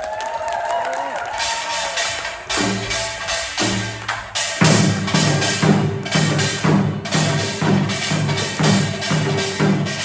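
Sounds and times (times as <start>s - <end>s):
rustling percussion strokes: 1.4s - 10.0s.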